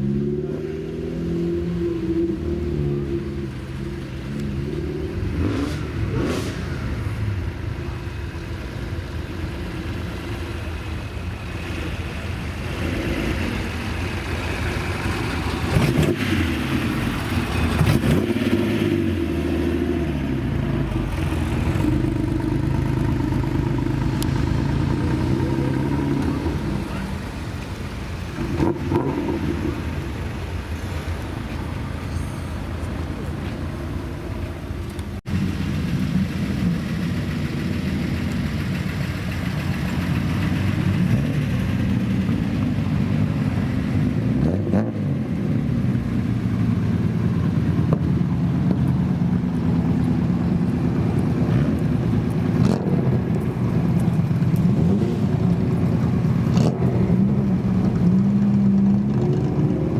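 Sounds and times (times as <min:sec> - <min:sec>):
car engines revving past: 0:00.0 - 0:59.9.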